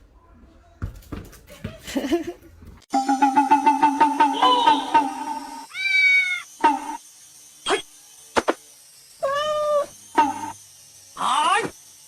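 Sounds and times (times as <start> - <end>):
steady pulsing sound: 3.0 - 5.7
cat meowing: 5.7 - 6.4.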